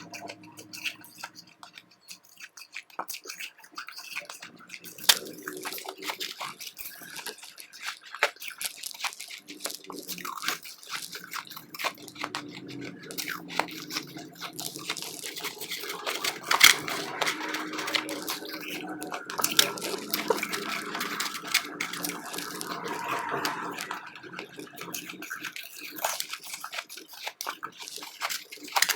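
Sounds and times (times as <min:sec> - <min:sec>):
chewing ice crunches: 0:00.0 - 0:28.9.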